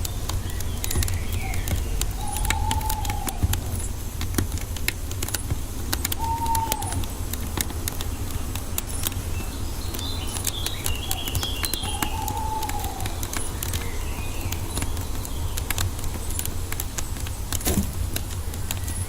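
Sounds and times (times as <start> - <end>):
birds chirping: 0.0 - 19.0
low rumble of fire: 0.0 - 19.0
wood fire crackling: 0.0 - 19.0
bird whistled note: 1.0 - 3.8, 6.2 - 7.0.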